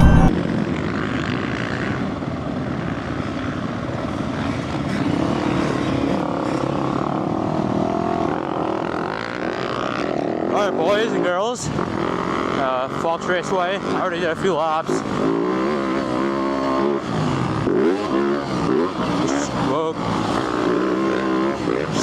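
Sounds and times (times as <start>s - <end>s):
steady rushing noise: 0.0s - 1.0s
dirt bike engines: 0.0s - 22.0s.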